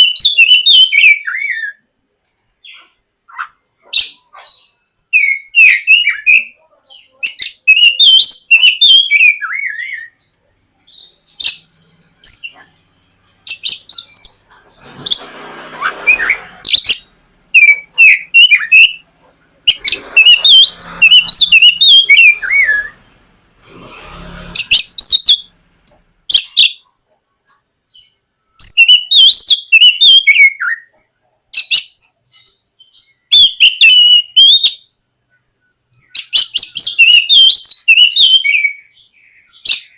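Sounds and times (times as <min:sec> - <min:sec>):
bird warbling whistled song: 0:00.0 - 0:01.8, 0:02.6 - 0:10.3, 0:10.9 - 0:12.6, 0:13.4 - 0:19.1, 0:19.7 - 0:23.1, 0:24.6 - 0:25.6, 0:26.3 - 0:27.0, 0:27.9 - 0:30.9, 0:31.6 - 0:34.9, 0:36.0 - 0:39.9
faint rough noise: 0:10.2 - 0:27.9.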